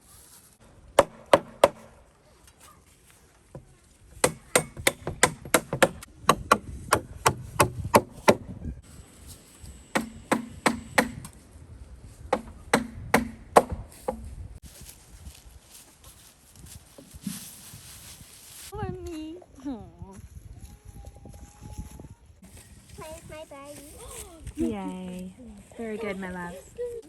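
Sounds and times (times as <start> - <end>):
hammer driving nails into wood: 1.0 - 1.9, 4.2 - 8.5, 10.0 - 11.4, 12.3 - 14.2.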